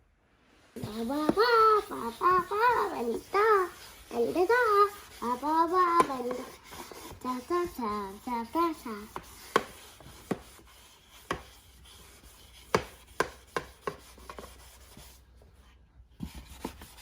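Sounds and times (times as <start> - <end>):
light taps and knocks: 9.1 - 10.6, 11.2 - 11.6, 12.7 - 14.5.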